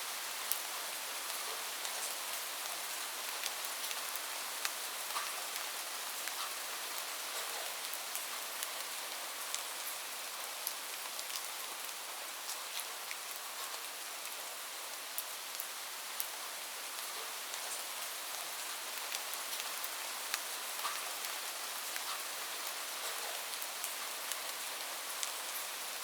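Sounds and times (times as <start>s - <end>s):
rain hiss: 0.0s - 26.0s
raindrops ticking on a surface: 0.1s - 26.0s.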